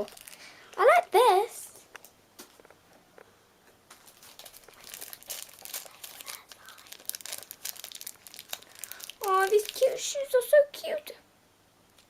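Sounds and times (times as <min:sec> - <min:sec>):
plastic wrapping crinkling and tearing: 0:00.0 - 0:00.5, 0:03.9 - 0:10.4.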